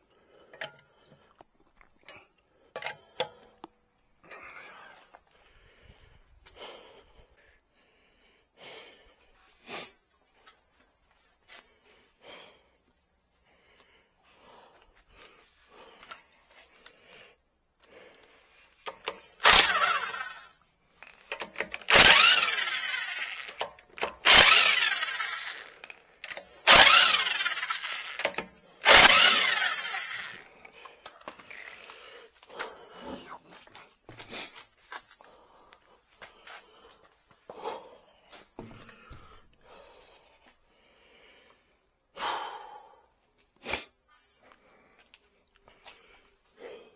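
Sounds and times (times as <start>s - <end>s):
power tool bursts: 19.4s - 20.5s, 21.2s - 30.5s, 31.1s - 32.1s.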